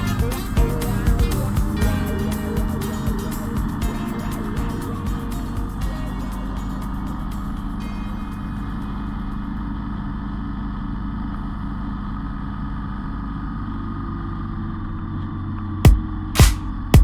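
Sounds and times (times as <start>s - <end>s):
electronic music beat: 0.0s - 7.8s, 15.9s - 17.0s
motorcycle engine running: 0.0s - 7.8s.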